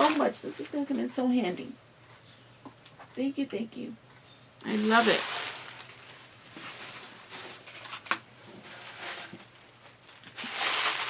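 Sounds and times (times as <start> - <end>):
packaging rustling: 0.0 - 0.4, 4.7 - 11.0
packaging crinkling: 0.0 - 0.5, 4.6 - 11.0.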